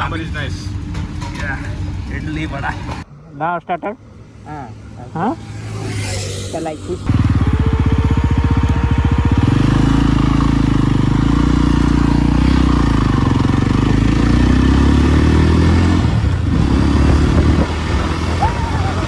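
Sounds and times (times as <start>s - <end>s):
motorcycle engine pulling away: 5.0s - 19.0s.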